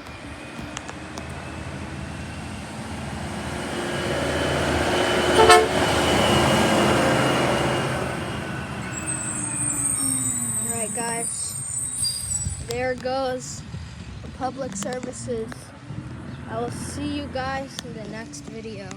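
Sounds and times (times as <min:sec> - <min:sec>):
garbage truck engine passing: 0:00.0 - 0:12.5
short horn toot: 0:05.2 - 0:06.0.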